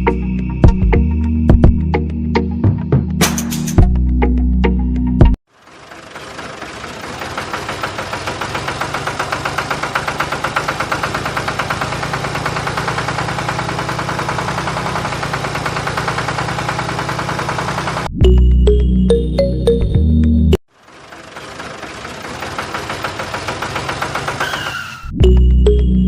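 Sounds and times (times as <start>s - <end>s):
small model engine knocking: 5.7s - 18.1s, 20.9s - 24.7s.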